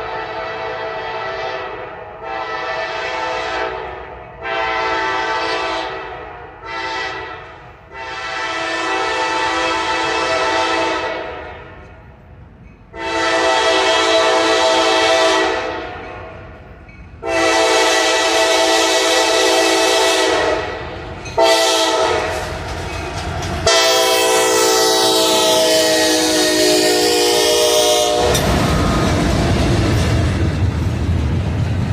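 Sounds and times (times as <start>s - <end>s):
locomotive horn blasts: 0.0s - 11.8s, 12.9s - 16.4s, 17.2s - 22.5s, 23.6s - 28.5s
train low rumble: 0.0s - 31.9s.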